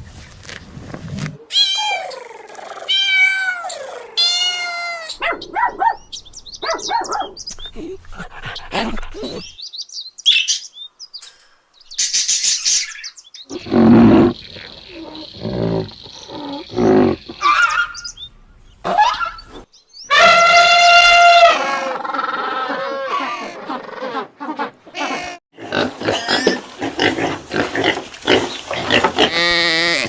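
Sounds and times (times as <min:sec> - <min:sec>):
cat meowing: 0:01.5 - 0:02.1, 0:02.9 - 0:05.1.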